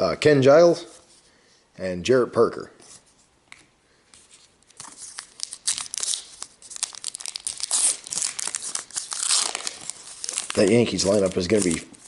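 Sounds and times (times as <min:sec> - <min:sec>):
wrapper tearing and crinkling: 0:04.7 - 0:12.0.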